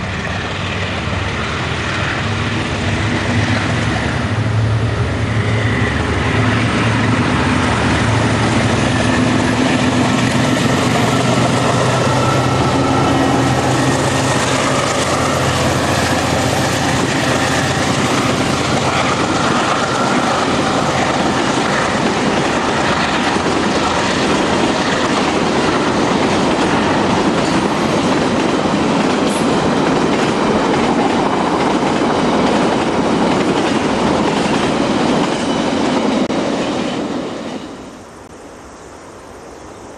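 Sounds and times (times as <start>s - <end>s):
train wagons rattling past: 0.0s - 38.0s
diesel locomotive engine: 0.0s - 39.9s
wheels clacking over rail joints: 6.1s - 37.2s.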